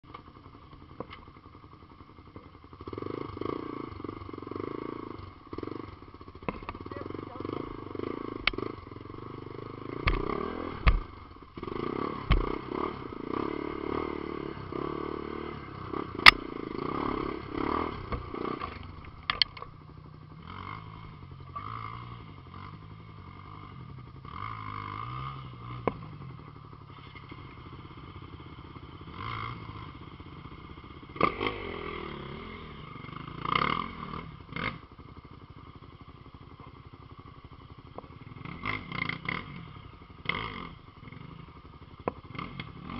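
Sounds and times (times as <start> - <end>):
off-road vehicle engine revving: 2.9 - 19.7, 20.3 - 34.9, 38.2 - 41.4, 42.0 - 42.9
sharp knocks and clatter: 10.0 - 11.1, 12.2 - 12.6.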